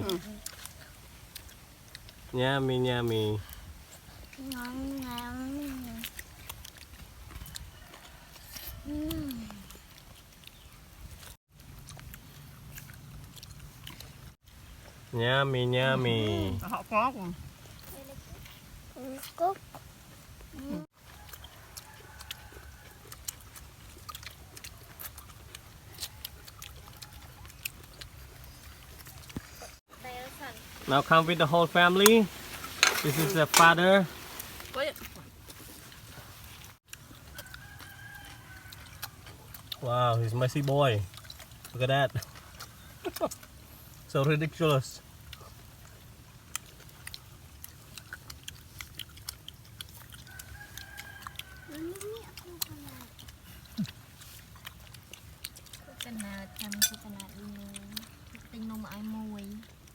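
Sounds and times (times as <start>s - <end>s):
people eating by hand: 0.0s - 59.9s
distant rooster crowing: 7.7s - 8.8s, 21.0s - 23.2s, 37.3s - 39.4s, 50.2s - 52.1s.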